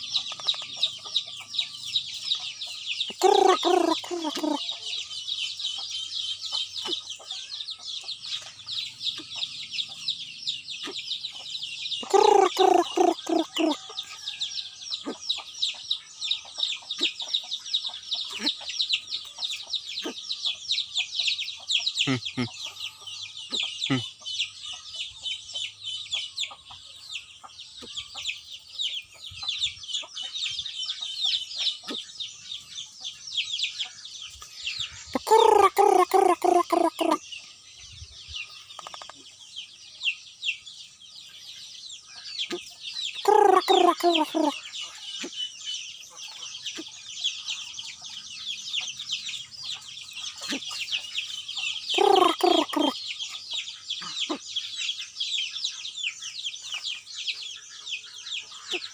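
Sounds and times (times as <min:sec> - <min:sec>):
high-pitched bird chirping: 0:00.0 - 0:58.9.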